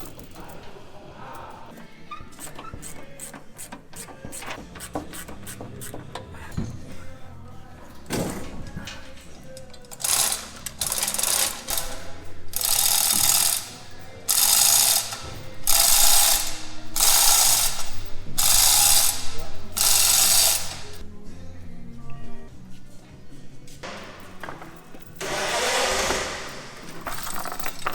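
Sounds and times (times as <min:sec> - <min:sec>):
background music: 0:00.0 - 0:27.9
ratchet wrench clicking: 0:09.8 - 0:21.0.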